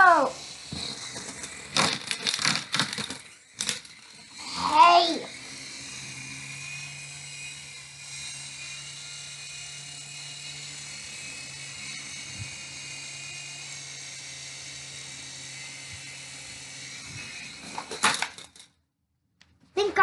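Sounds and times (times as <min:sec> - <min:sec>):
toy helicopter motors whining: 0:00.0 - 0:18.8.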